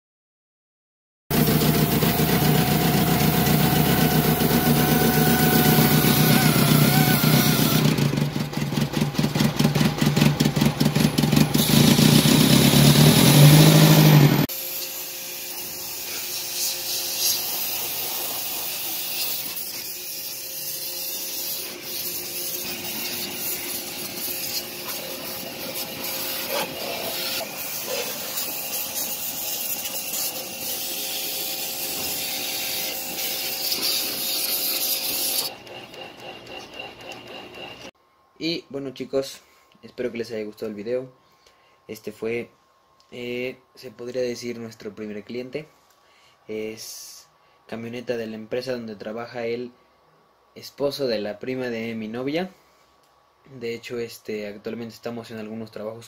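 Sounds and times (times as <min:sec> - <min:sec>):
car engine running: 0:07.9 - 0:14.5.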